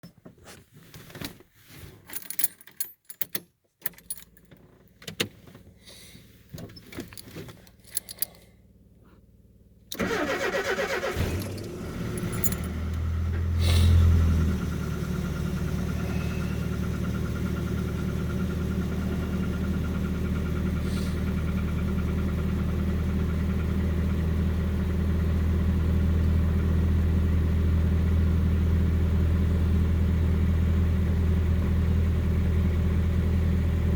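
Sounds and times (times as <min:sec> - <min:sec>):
starter motor cranking: 0:09.9 - 0:13.1
engine revving and idling: 0:09.9 - 0:33.9.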